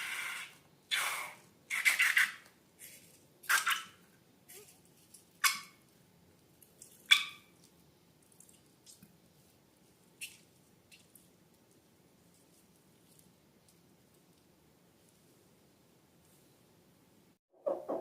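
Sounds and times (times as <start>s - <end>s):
hands squishing slime: 6.5s - 14.5s.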